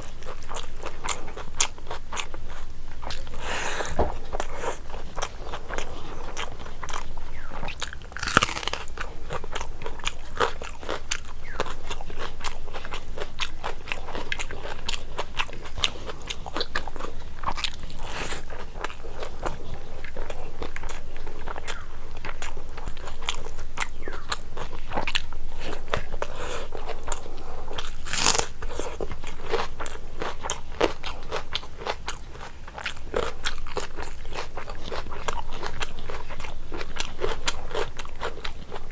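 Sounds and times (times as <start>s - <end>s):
person crunching and chewing food: 0.0s - 38.9s.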